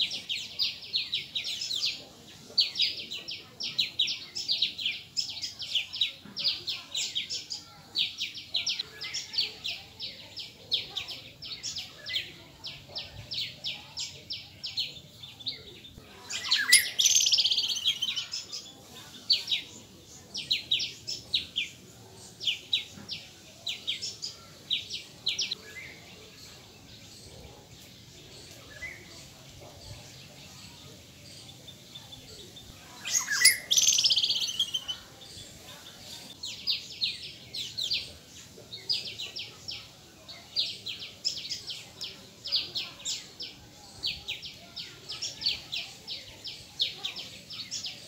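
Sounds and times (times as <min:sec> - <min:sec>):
small birds chirping: 0:00.0 - 0:48.0.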